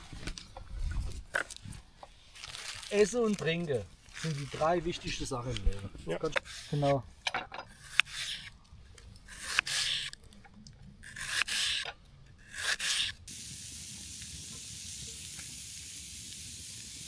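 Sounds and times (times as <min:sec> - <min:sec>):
food sizzling in a pan: 0:13.3 - 0:17.0
short hissing sprays: 0:13.3 - 0:17.0.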